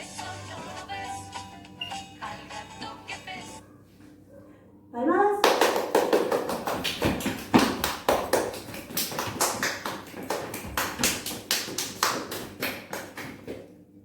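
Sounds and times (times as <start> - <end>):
fast hand claps: 5.4 - 13.7.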